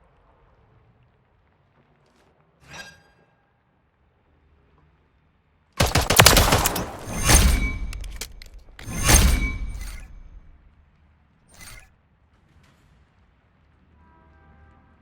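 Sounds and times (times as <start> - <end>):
pistol gunfire: 5.8 - 10.5.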